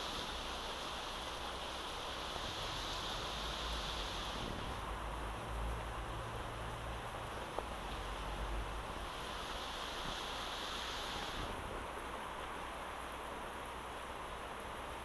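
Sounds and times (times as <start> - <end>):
steady rain falling: 0.0 - 15.0
higher-pitched hiss: 9.1 - 11.5.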